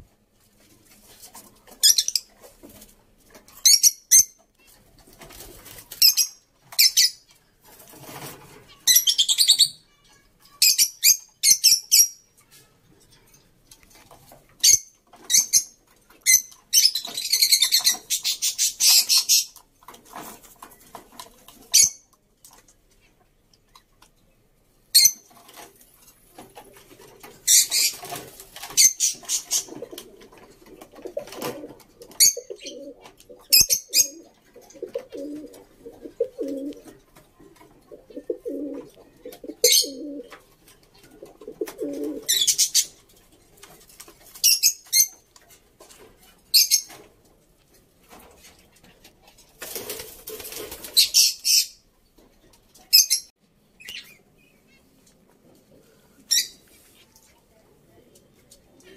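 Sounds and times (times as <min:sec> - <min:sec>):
high-pitched bird calls: 0:08.8 - 0:09.9.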